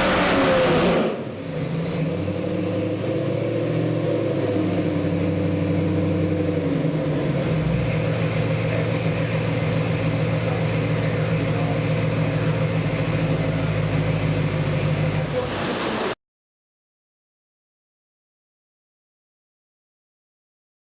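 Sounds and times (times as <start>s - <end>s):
engine running on dyno: 0.0s - 16.2s.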